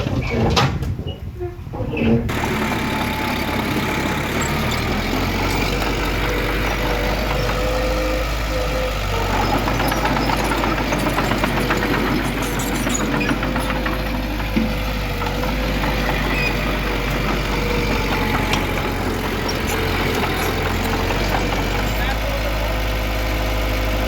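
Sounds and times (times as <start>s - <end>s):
diesel engine running: 2.3s - 24.0s
light rattle: 9.1s - 22.2s.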